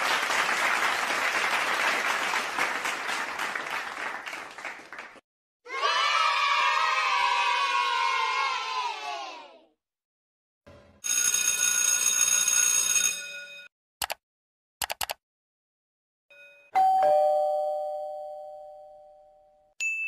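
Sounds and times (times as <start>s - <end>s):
sharp clicks: 14.0s - 14.2s, 14.8s - 15.2s
two-tone doorbell chime: 16.3s - 20.0s.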